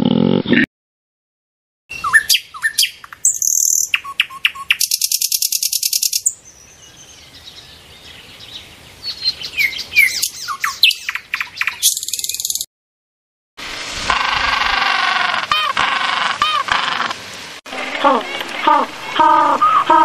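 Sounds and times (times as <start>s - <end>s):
buzzy bird trill: 1.9s - 6.4s, 9.5s - 12.6s
songbird chirping: 1.9s - 12.7s.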